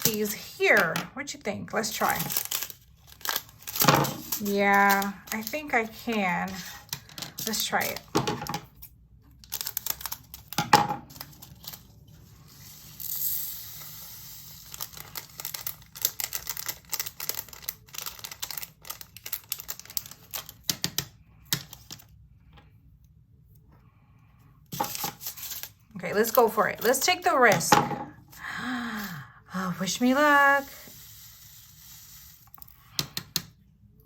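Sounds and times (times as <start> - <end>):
plastic bag rustling: 1.9 - 8.1, 14.5 - 20.6.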